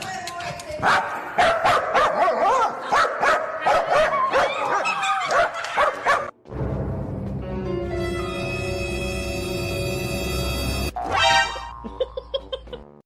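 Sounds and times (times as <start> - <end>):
music: 6.5 - 13.0.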